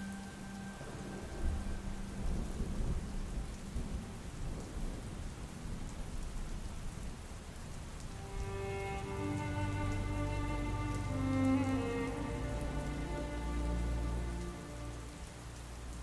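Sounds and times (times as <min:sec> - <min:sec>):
steady rain falling: 0:00.0 - 0:16.0
low rumble of thunder: 0:00.3 - 0:08.5.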